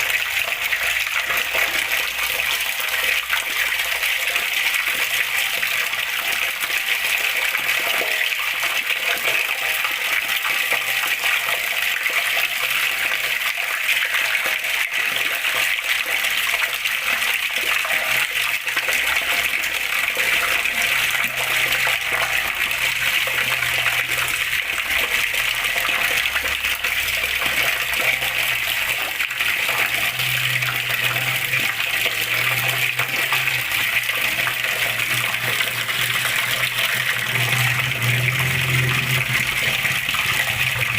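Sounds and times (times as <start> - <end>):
water flowing and splashing: 0.0 - 40.9.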